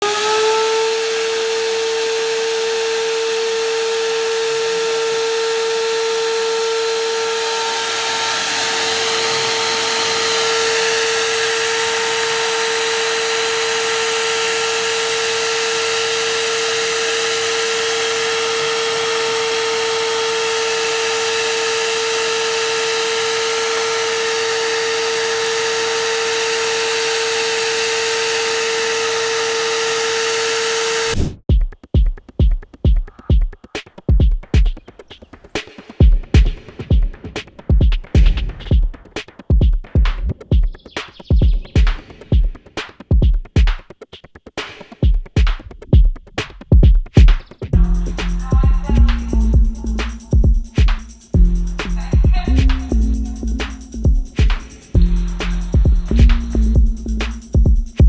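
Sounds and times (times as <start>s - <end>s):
vacuum cleaner running: 0.0s - 31.2s, 47.8s - 58.0s.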